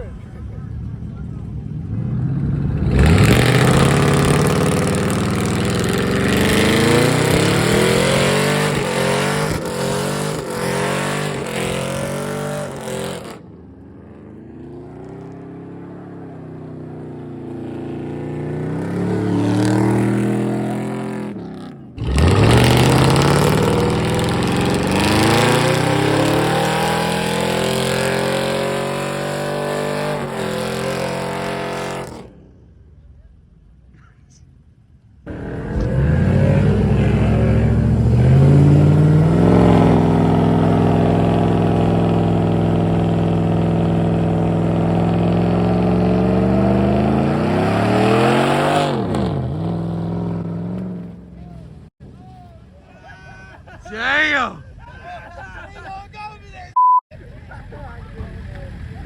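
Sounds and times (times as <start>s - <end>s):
truck engines revving: 0.0s - 52.9s.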